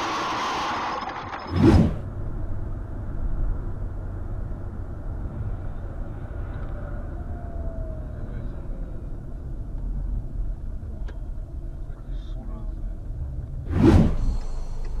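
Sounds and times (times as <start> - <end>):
car engine rumble: 0.0 - 15.0
tyres on road: 0.0 - 15.0
loud thump: 13.7 - 14.6.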